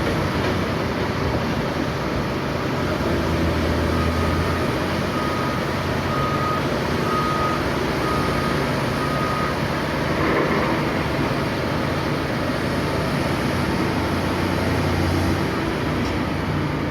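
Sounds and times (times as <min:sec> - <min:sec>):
heavy machinery engine running: 0:00.0 - 0:16.9
reversing alarm beeping: 0:03.9 - 0:10.0.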